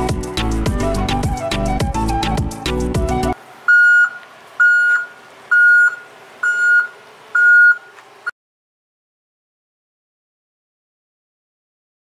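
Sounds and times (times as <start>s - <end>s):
short high beeps: 3.7s - 7.9s.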